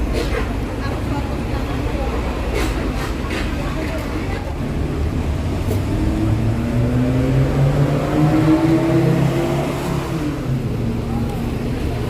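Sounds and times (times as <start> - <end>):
low traffic rumble: 0.0 - 12.0
vehicle engine accelerating: 4.6 - 12.0.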